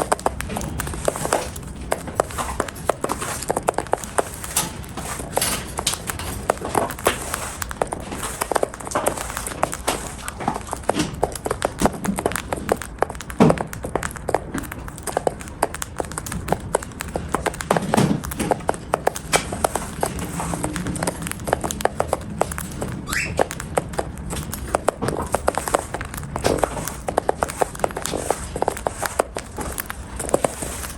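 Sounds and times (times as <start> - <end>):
bird beak crunching food: 0.0 - 30.9
cockatiel chirp: 23.0 - 23.6.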